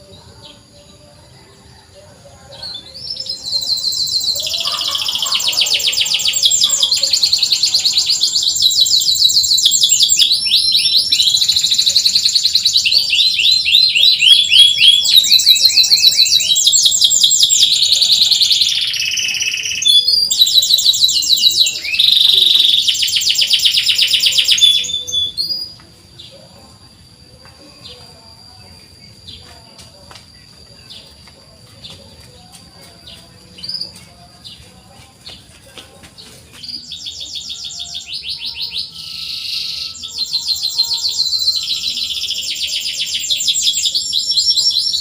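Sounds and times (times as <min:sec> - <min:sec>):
canary singing chirping trills: 0:00.0 - 0:45.0.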